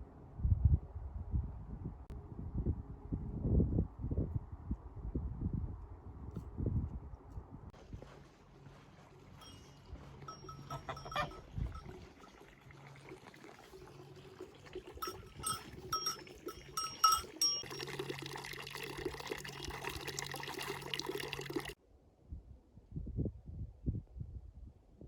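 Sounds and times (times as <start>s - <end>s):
water rushing: 8.3s - 21.8s
livestock bells clanking: 9.4s - 12.5s, 15.0s - 18.5s.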